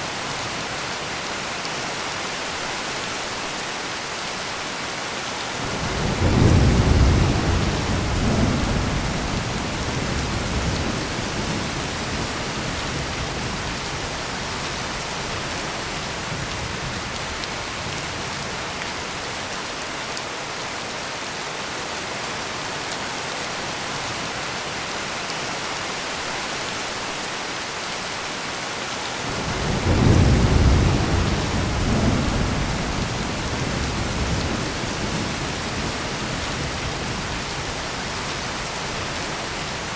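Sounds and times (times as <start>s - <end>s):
heavy rain pouring: 0.0s - 39.9s
low rolls of thunder: 5.7s - 13.6s, 29.3s - 37.3s.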